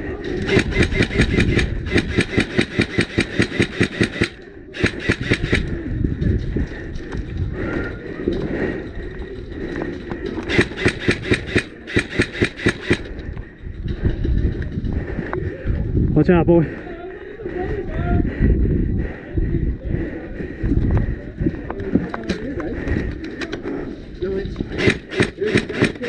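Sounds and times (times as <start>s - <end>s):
airsoft rifle firing rapid shots: 0.4s - 5.8s, 10.5s - 13.1s, 24.8s - 26.0s.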